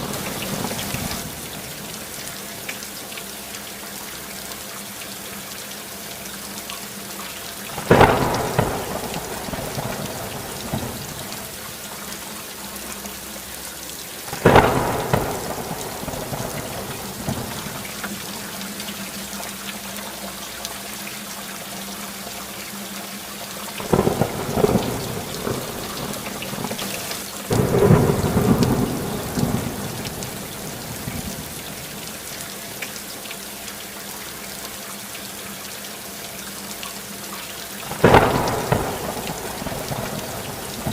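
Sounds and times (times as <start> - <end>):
thunder claps and rumble: 0.0 - 1.8, 7.8 - 11.8, 14.3 - 18.3, 23.8 - 32.3, 37.9 - 40.9
steady rainfall: 0.0 - 40.9.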